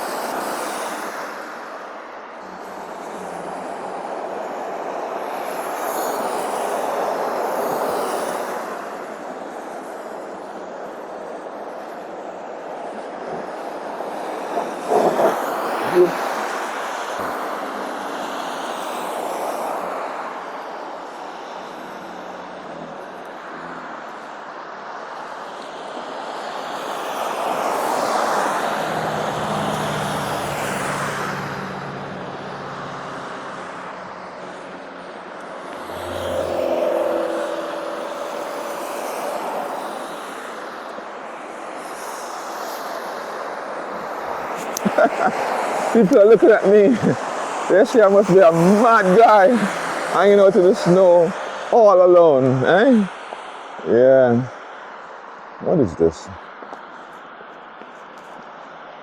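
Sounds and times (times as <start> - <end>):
highway traffic passing: 0.0 - 59.0
low engine hum: 35.4 - 39.7.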